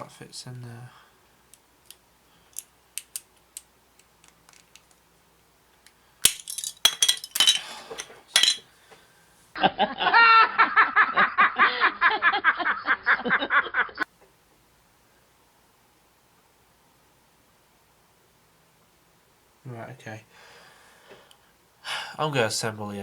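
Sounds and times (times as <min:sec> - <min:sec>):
plastic model parts clicking: 0:01.8 - 0:05.0
person laughing: 0:09.6 - 0:14.0.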